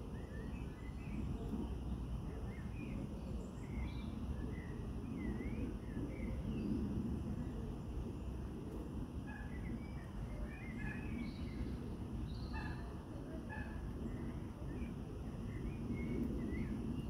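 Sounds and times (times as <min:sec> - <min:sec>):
small birds chirping: 0:09.2 - 0:17.0.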